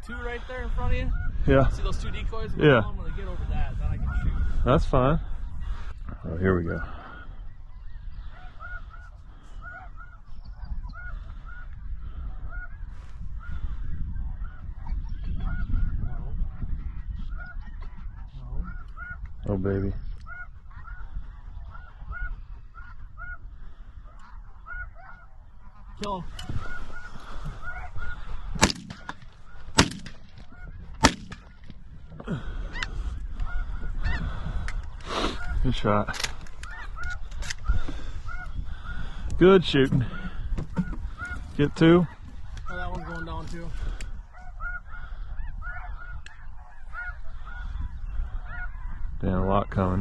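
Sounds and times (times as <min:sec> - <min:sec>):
geese yelping honks: 0:06.8 - 0:19.4, 0:20.2 - 0:49.2
shotgun shots: 0:28.6 - 0:30.4, 0:31.0 - 0:31.5.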